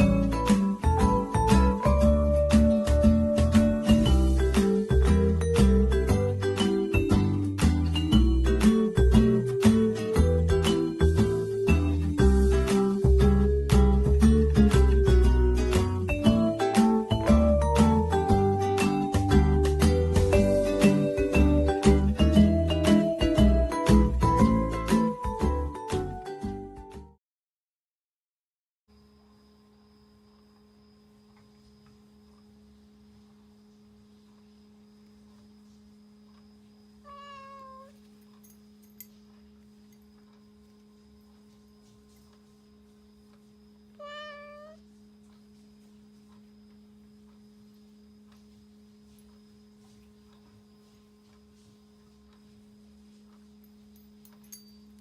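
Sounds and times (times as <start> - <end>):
steady low hum: 0.0 - 25.0, 28.9 - 55.0
cat meowing: 37.1 - 37.9, 44.0 - 44.8.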